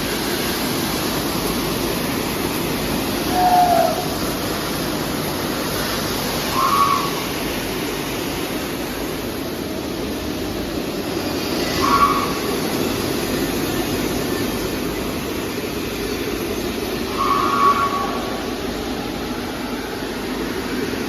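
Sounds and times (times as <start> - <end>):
parts washer machine running: 0.0 - 21.0
short high squeal: 6.5 - 7.3, 11.6 - 12.4, 17.1 - 18.5.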